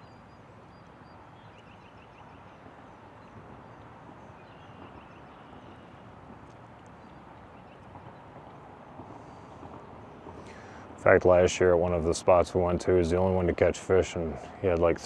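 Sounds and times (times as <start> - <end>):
small birds chirping: 0.0 - 8.3.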